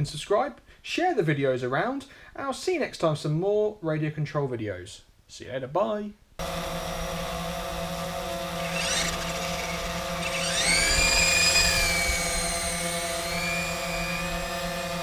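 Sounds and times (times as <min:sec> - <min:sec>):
toy helicopter rotor motors whining: 0:06.5 - 0:15.0.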